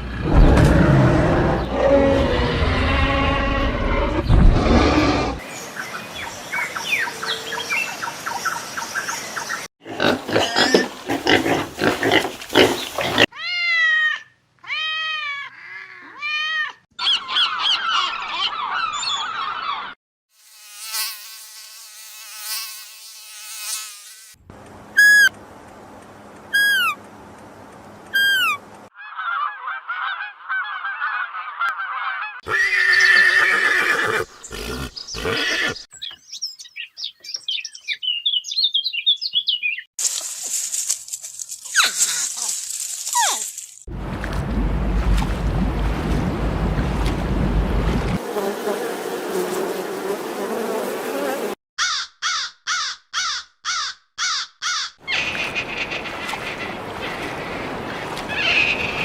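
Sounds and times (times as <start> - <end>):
animal calls and cries: 6.7 - 20.0, 26.5 - 27.0, 28.1 - 35.9, 53.2 - 59.0
short high calls dropping in pitch: 25.0 - 25.3, 26.6 - 27.0
rising-then-falling pitched calls: 28.2 - 34.2.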